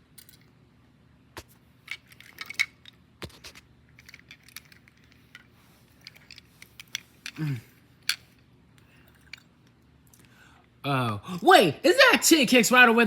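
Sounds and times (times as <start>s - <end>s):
metal toy cars clinking: 1.9s - 3.0s, 4.0s - 8.4s.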